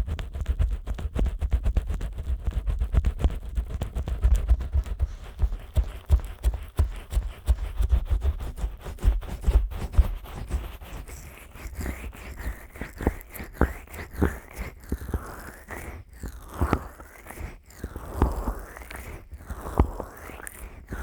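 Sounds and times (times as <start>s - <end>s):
wet sticky rubbing on microphone: 0.0s - 16.0s.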